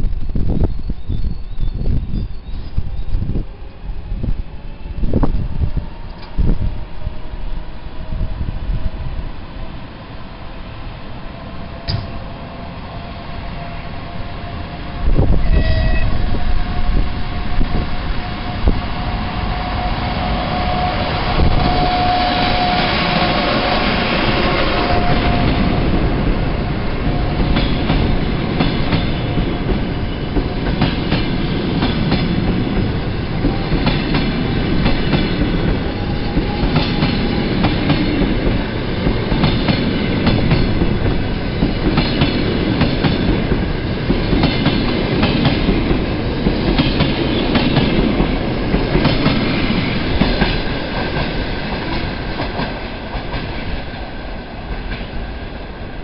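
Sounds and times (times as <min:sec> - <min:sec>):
locomotive whine: 0:00.1 - 0:56.0
train wheels clicking over rail joints: 0:11.7 - 0:12.4, 0:27.0 - 0:53.8.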